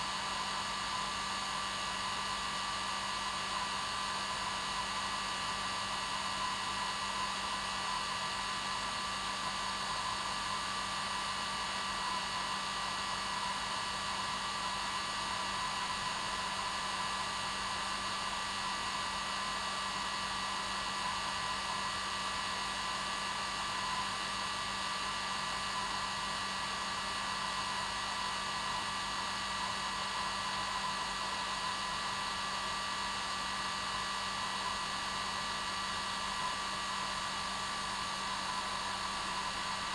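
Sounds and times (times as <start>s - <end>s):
hair dryer running: 34.2s - 39.9s.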